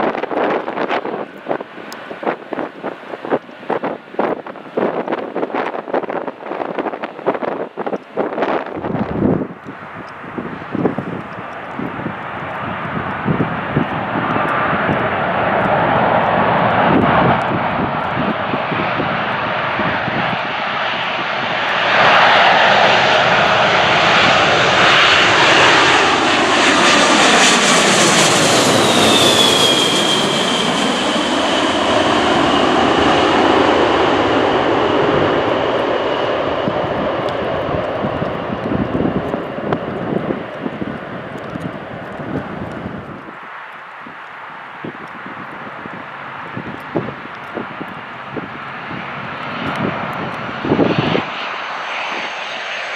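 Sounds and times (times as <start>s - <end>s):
jet airliner passing overhead: 0.0s - 52.9s
wind buffeting microphone: 0.0s - 52.9s.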